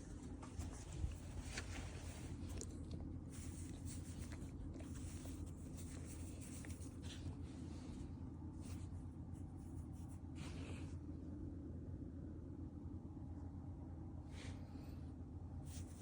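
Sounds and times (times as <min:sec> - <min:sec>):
faint rustles and clicks: 0:00.0 - 0:11.1
low hum: 0:00.0 - 0:16.0.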